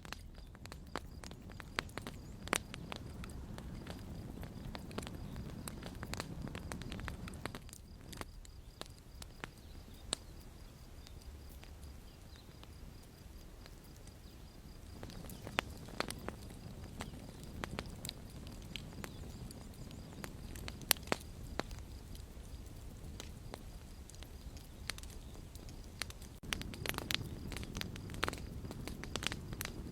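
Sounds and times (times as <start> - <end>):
wood fire crackling: 0.0 - 29.9.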